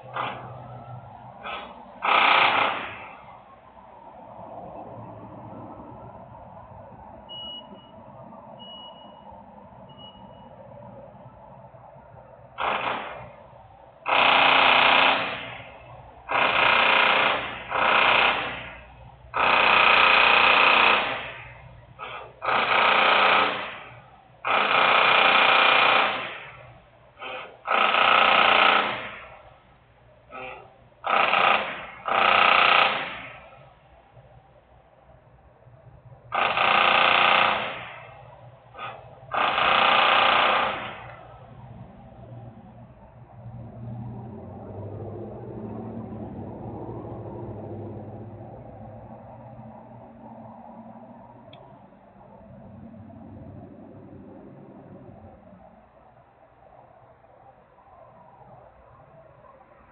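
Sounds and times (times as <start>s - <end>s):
loud industrial machinery bursts: 0.0s - 0.7s, 1.4s - 3.2s, 14.0s - 29.4s, 30.3s - 33.6s, 36.3s - 38.2s
power tool buzzing rattle: 1.5s - 3.0s, 14.1s - 15.6s, 27.2s - 29.3s, 30.4s - 33.3s, 36.3s - 38.0s, 38.9s - 41.2s.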